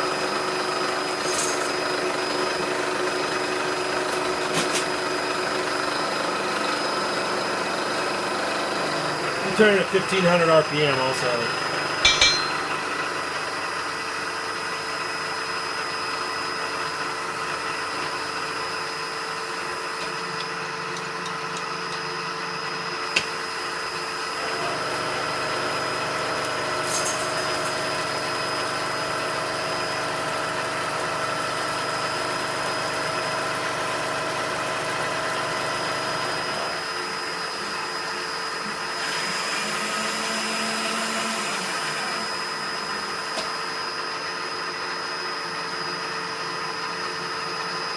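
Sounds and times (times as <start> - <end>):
metal lathe whine: 35.6 - 47.9.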